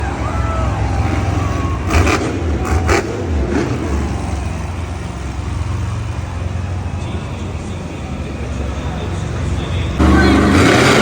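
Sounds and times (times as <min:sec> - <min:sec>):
truck engine deep rumble: 0:00.0 - 0:11.0
harsh engine bursts: 0:10.0 - 0:11.0.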